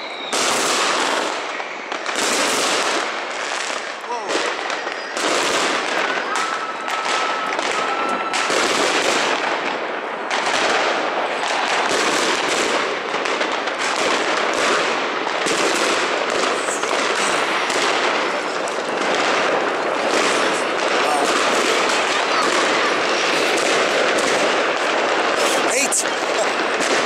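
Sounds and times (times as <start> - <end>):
thin whistle: 0.0 - 0.4
fireworks and firecrackers banging: 0.0 - 27.0.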